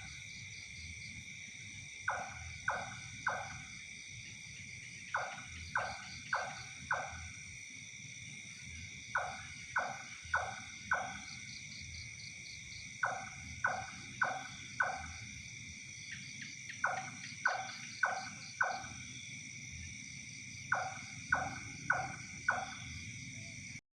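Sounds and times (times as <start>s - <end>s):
high-pitched insect chorus: 0.0s - 23.8s.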